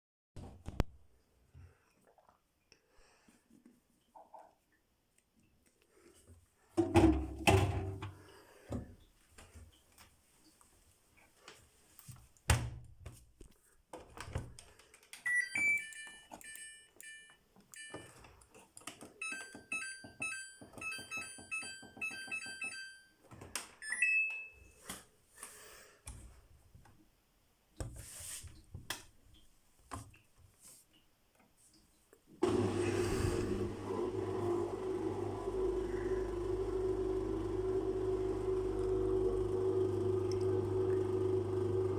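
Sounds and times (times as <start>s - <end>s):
electronic beeps and chimes: 15.3s - 18.0s
washing machine humming: 32.4s - 41.9s.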